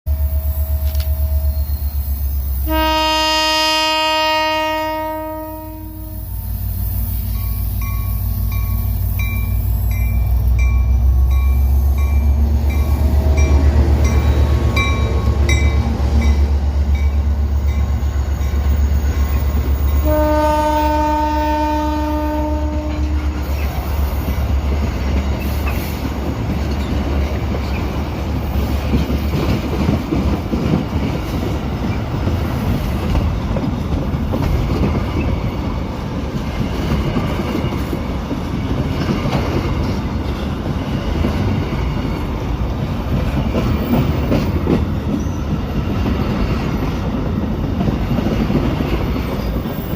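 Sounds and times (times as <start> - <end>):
train air horn: 0.1 - 6.5, 19.9 - 23.7
diesel locomotive engine drone: 0.1 - 49.9
train wheels clacking on rails: 0.1 - 49.9.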